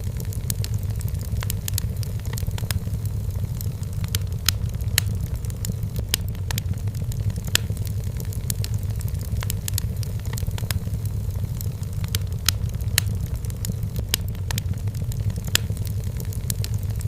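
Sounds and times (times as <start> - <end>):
firewood crackling and popping: 0.0 - 17.0
low rumble of fire: 0.0 - 17.0.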